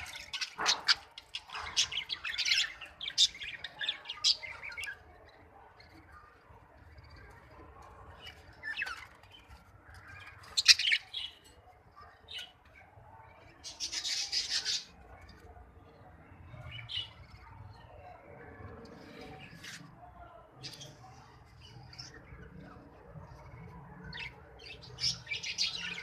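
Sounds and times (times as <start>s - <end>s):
budgerigars chirping and squawking: 0.0s - 5.0s, 8.2s - 11.4s, 13.6s - 15.1s.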